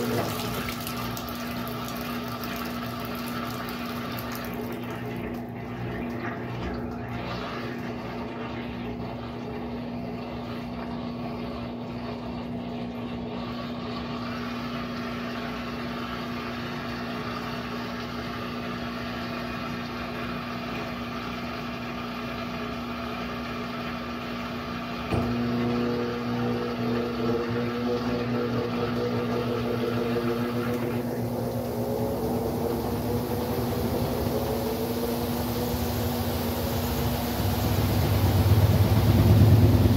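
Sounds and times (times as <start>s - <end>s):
washing machine humming: 0.0s - 39.9s
motor whine rising: 25.1s - 39.9s.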